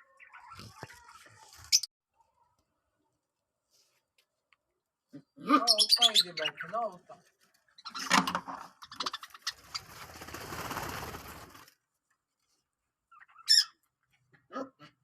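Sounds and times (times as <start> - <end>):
bird chirp: 0.0 - 2.5, 5.6 - 10.0, 13.1 - 13.8
bird wings fluttering: 9.0 - 12.0.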